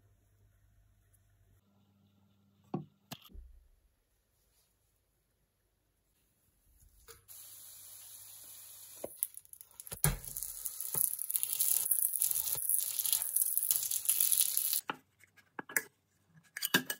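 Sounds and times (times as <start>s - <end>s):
flatbread sizzling in frying pan: 7.1s - 14.8s.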